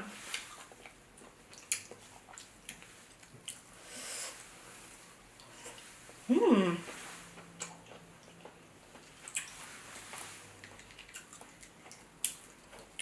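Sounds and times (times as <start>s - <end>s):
chewing: 0.2s - 3.8s, 6.8s - 13.0s.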